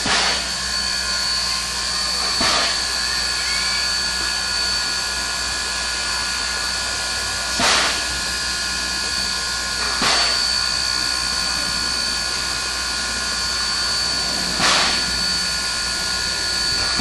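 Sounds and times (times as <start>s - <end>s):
steam hissing: 0.0s - 17.0s
thin high whistle-like tone: 0.8s - 5.0s.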